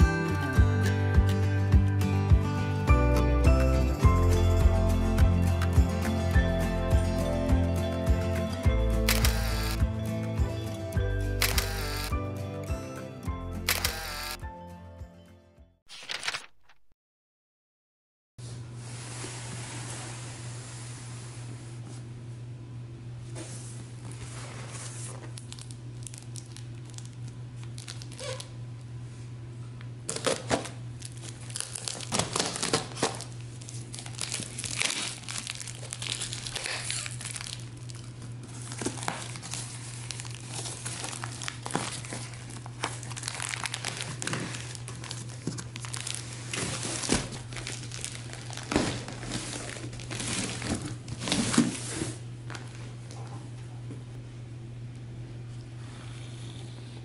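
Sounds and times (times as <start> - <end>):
plastic bag crinkling: 25.2 - 28.5, 30.1 - 51.9
packing tape ripping off cardboard: 25.3 - 28.5, 30.1 - 38.0, 38.6 - 52.1.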